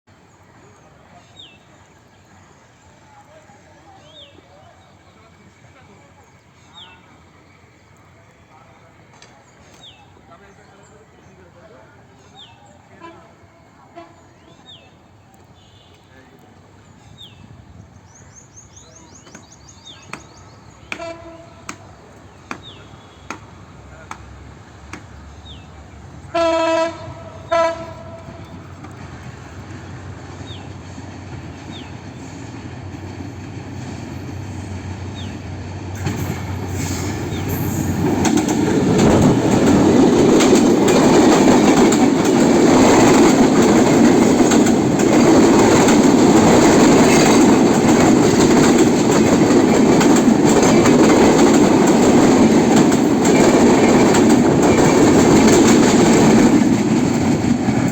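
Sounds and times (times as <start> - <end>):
train horn: 12.9 - 14.4, 20.9 - 21.8, 26.3 - 28.7
train rumble: 16.1 - 57.9
wheels clattering over rails: 36.0 - 57.9.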